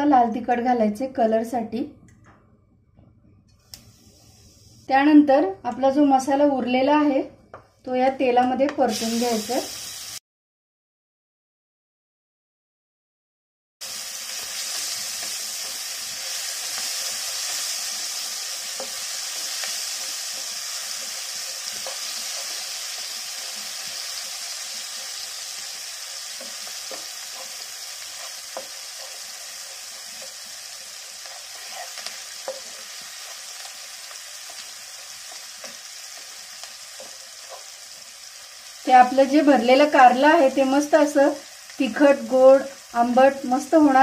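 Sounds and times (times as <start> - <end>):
spices sizzling in hot oil: 3.7 - 5.0, 8.7 - 10.2, 13.8 - 44.0
spoon scraping a pan: 14.3 - 38.1.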